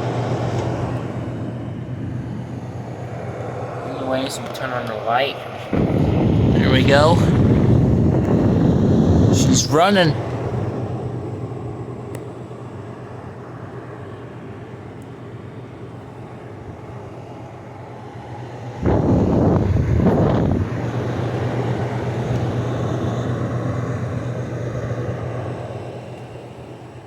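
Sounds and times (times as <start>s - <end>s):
air conditioner fan and hum: 0.0s - 27.0s
loud rushing noise: 1.1s - 11.9s.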